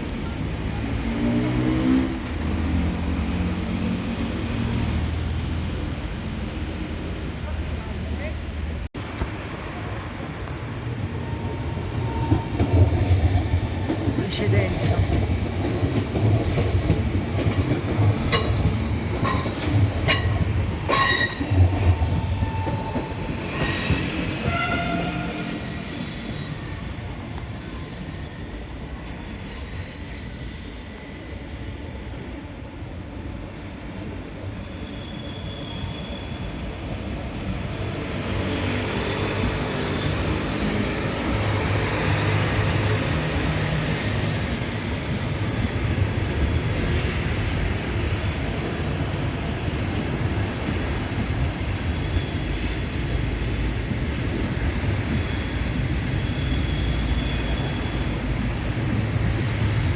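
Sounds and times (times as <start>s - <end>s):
train rumbling on rails: 0.0s - 59.9s
high-pitched wheel squeals: 20.9s - 25.5s, 34.5s - 36.9s, 55.2s - 58.7s.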